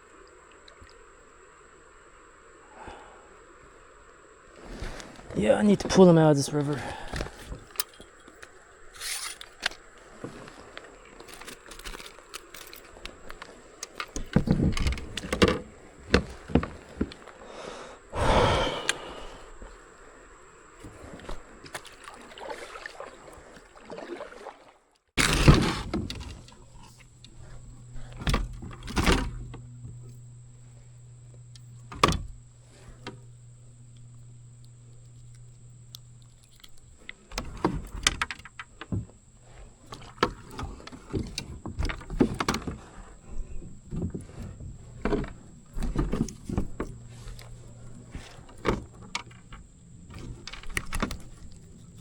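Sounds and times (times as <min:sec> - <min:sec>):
low steady hum: 0:00.0 - 0:24.2, 0:25.2 - 0:52.0
knocks and thuds on a kayak: 0:40.0 - 0:47.3.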